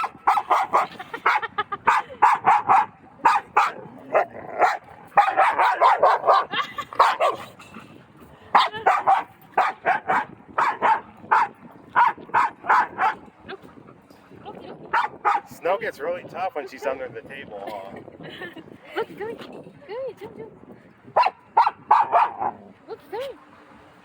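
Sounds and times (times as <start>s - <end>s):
dogs barking: 0.0s - 7.6s, 8.5s - 13.3s, 14.9s - 15.6s, 21.2s - 22.6s.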